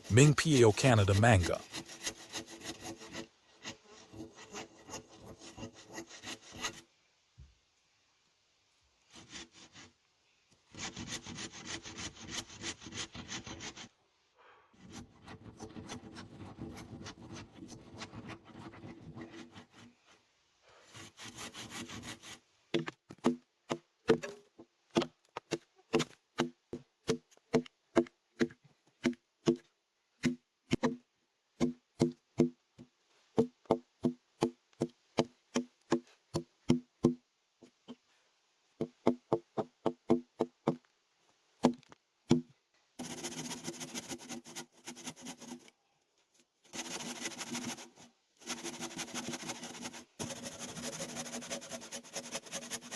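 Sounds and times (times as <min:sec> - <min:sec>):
handsaw cutting wood: 0:00.9 - 0:06.7, 0:20.9 - 0:22.4, 0:43.0 - 0:45.6, 0:46.7 - 0:52.9.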